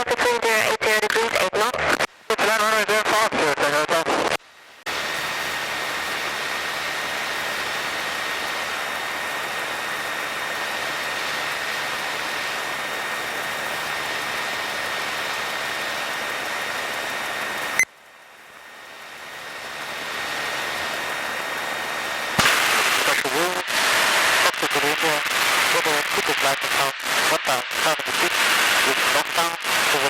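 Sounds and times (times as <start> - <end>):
airplane engine drone: 4.9 - 27.2.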